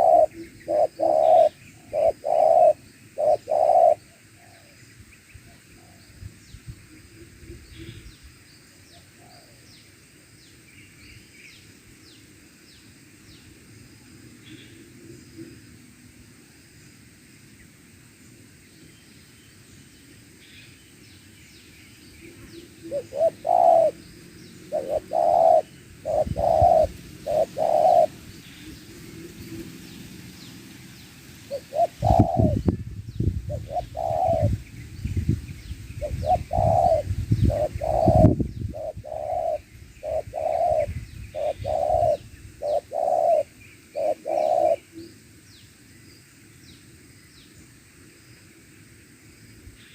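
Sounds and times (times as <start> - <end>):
dove cooing: 0.0 - 4.8, 22.8 - 24.0, 24.6 - 28.3, 31.5 - 32.7, 33.5 - 34.6, 36.0 - 44.9.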